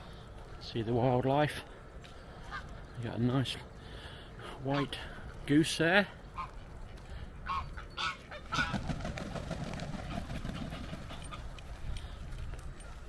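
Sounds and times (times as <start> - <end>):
goose honking: 7.4 - 9.0.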